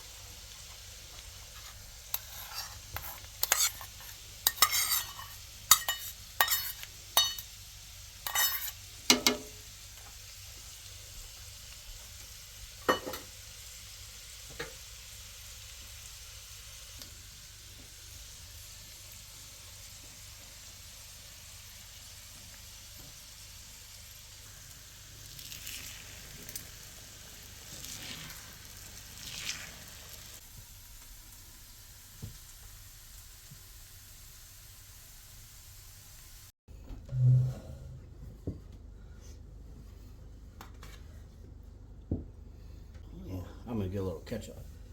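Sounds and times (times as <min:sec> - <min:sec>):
food sizzling in a pan: 0:00.0 - 0:36.6
soft utensil scrapes: 0:01.4 - 0:07.4, 0:08.3 - 0:08.8, 0:37.1 - 0:38.4
utensil knocking against pan: 0:09.1 - 0:09.6.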